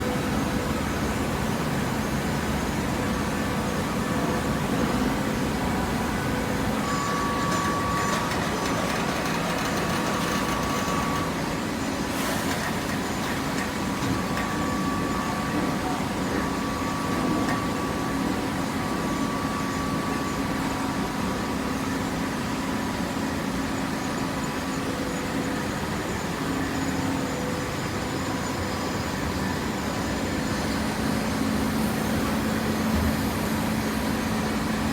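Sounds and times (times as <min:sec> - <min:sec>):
baler machine hum: 0:00.0 - 0:21.8
faint machine whine: 0:00.0 - 0:34.9.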